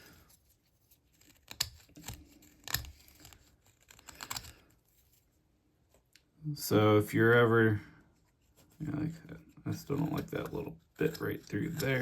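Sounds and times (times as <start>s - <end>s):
knife carving wood: 0.2s - 5.1s, 9.3s - 12.0s.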